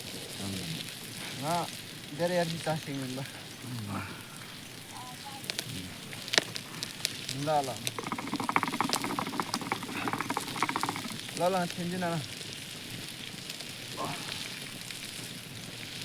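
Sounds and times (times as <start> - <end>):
voices: 0.4 - 12.2, 14.0 - 14.6
wood fire crackling and popping: 5.5 - 13.8
fast dense chattering: 7.6 - 11.6.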